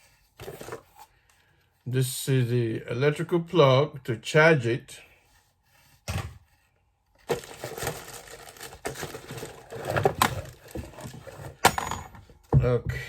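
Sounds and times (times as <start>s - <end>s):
packaging crinkling and rustling: 7.2s - 11.6s.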